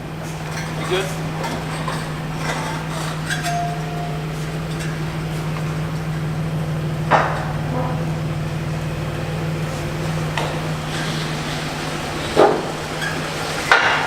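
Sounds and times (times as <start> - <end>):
car engine idling: 0.0 - 14.0
light metallic clinks: 0.2 - 8.8.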